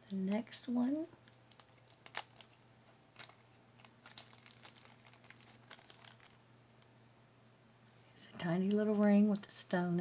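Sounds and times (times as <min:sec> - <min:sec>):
plastic packaging crinkling: 0:00.1 - 0:06.4.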